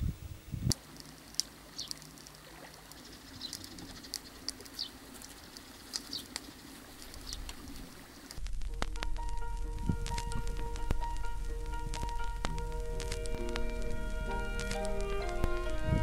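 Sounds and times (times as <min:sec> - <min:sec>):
faint steady hum: 0:00.0 - 0:16.0
small birds chirping: 0:00.6 - 0:08.4.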